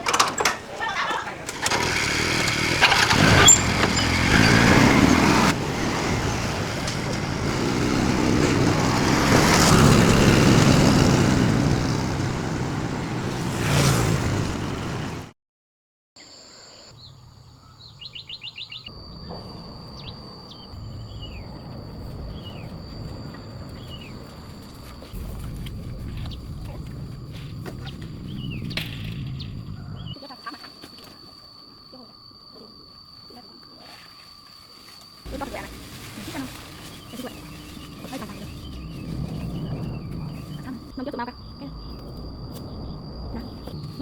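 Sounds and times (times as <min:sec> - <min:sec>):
birds chirping: 0:35.3 - 0:42.0
high-pitched hum: 0:35.3 - 0:44.0.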